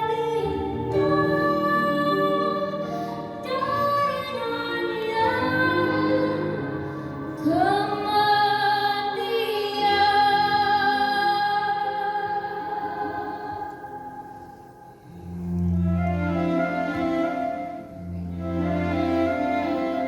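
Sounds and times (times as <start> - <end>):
woman singing with vibrato: 0.0 - 14.8.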